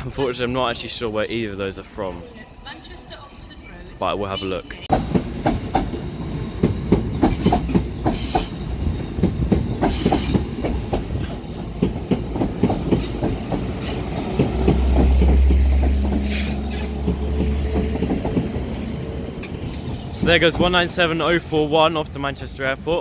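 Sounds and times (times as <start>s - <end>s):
train wheels clattering over rails: 4.9s - 22.8s.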